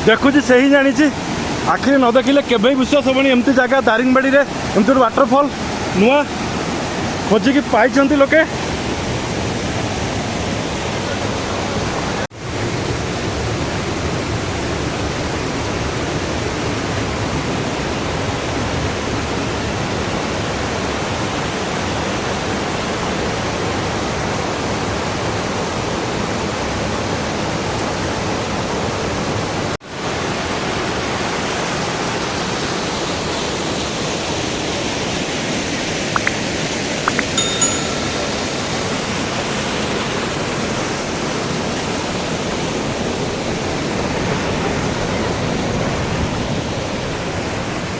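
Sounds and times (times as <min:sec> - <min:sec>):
waterfall roaring: 0:00.0 - 0:47.9.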